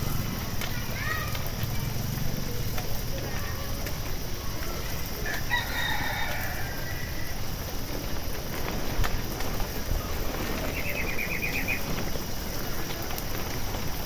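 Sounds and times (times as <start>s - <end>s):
low background noise: 0.0s - 14.0s
rooster crowing: 5.2s - 7.4s.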